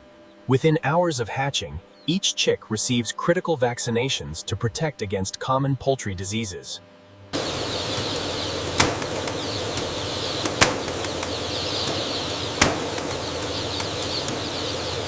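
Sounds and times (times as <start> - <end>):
chicks peeping: 7.4 - 15.0
steady hiss: 7.4 - 15.0
sharp mechanical clacks: 8.7 - 15.0.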